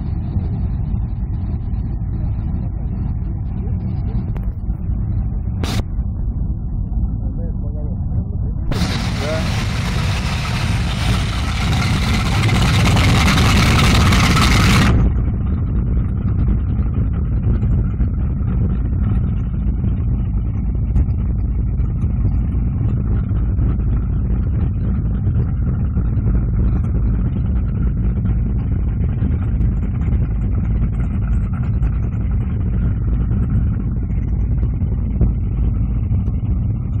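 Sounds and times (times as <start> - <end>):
boat engine running: 0.0 - 37.0
loud hiss: 8.7 - 14.9.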